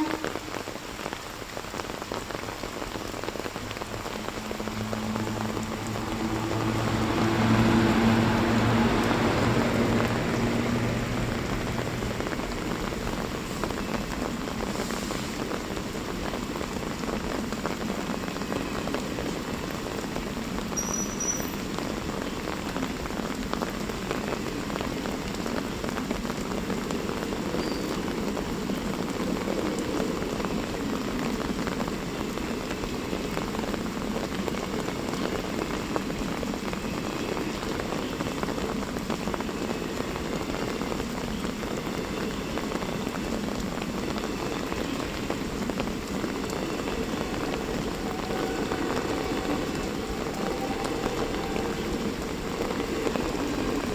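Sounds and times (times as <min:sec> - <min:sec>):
rain falling: 0:00.0 - 0:53.9
low hum: 0:03.4 - 0:13.3.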